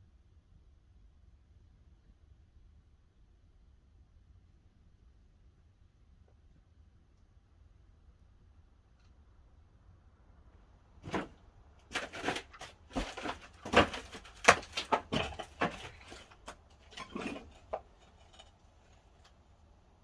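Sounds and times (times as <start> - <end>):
firewood knocking and clattering: 11.0 - 19.4.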